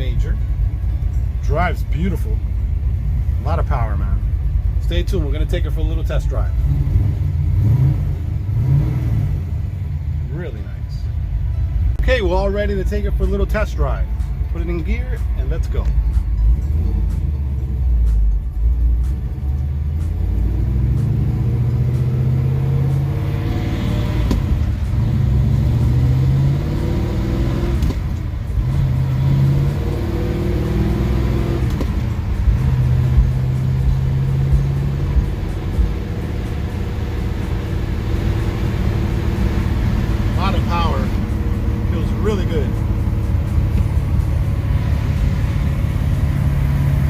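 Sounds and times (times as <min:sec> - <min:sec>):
car engine accelerating through gears: 0:06.5 - 0:10.2, 0:16.1 - 0:47.0.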